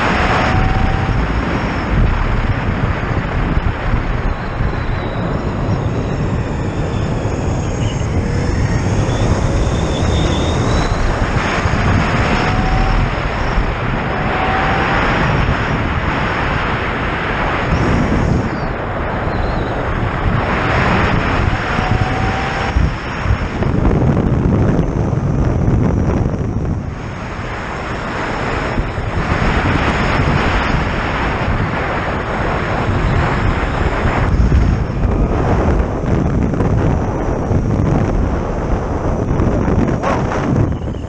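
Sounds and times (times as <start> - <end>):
electric motor whine: 0.0 - 31.1
wind rush on microphone: 0.0 - 41.0.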